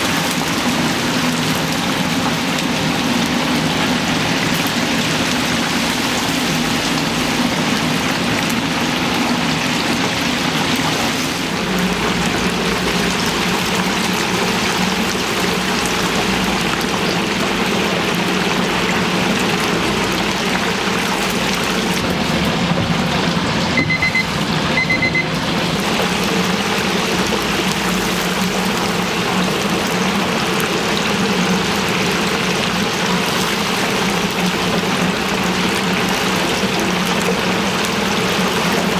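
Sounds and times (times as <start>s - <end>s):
chicken sizzling in hot oil: 0.0s - 38.9s
electronic beeps: 23.8s - 25.4s.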